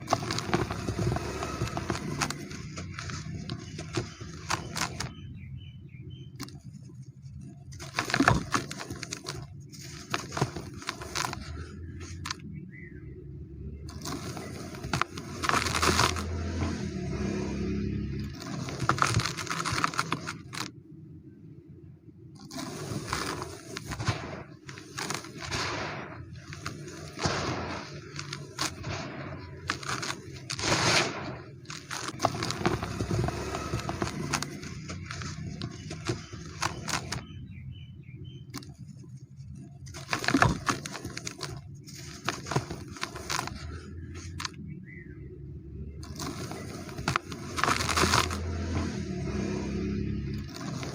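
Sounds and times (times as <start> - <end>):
dry cement crumbling: 0.0 - 5.4, 6.2 - 12.4, 13.9 - 20.7, 22.4 - 37.6, 38.4 - 44.6, 46.0 - 50.9
sharp crackles: 0.0 - 5.5, 13.9 - 20.7, 22.4 - 44.6, 46.0 - 50.9.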